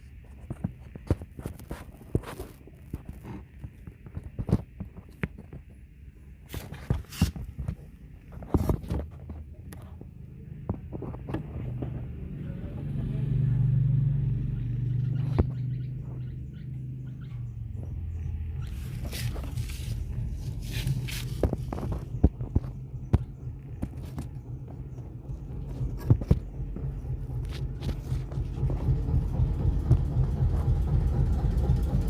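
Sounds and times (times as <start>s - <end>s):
low rumble with steady hum: 0.0s - 32.0s
knocks and clatter: 18.6s - 32.0s.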